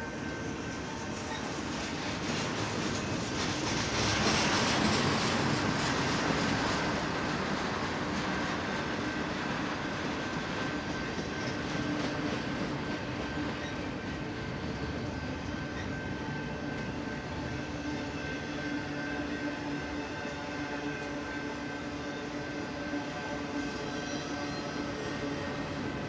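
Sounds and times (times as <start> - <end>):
freight train wheels on rails: 0.0 - 26.0.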